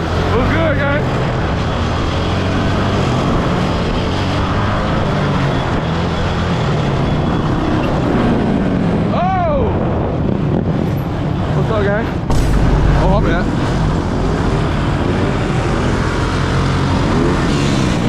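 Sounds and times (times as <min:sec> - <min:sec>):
wind noise: 0:00.0 - 0:18.0
dirt bike engine running: 0:12.3 - 0:18.0.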